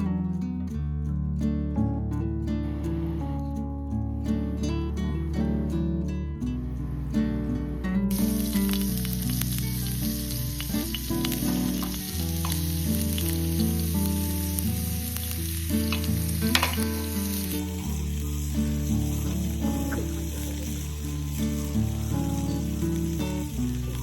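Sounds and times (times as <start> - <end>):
soft background music: 0.0 - 24.0
food sizzling with pops: 8.1 - 24.0.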